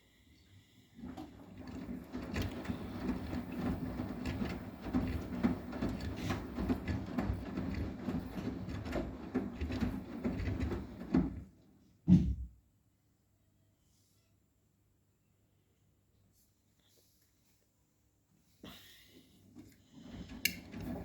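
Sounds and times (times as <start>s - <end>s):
washing machine motor humming: 1.0s - 11.7s, 19.6s - 21.0s
knocks and sloshing from drum: 1.0s - 12.4s, 19.9s - 21.0s.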